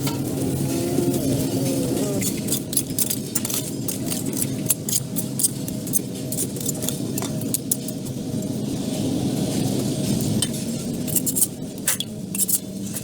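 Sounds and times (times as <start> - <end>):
small hard objects clinking: 0.2 - 8.1.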